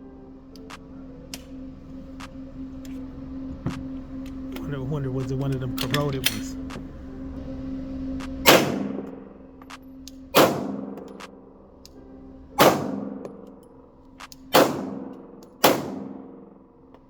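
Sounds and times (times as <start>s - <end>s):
pistol shots: 8.4s - 9.2s, 10.3s - 11.4s, 12.6s - 13.5s, 14.5s - 16.6s.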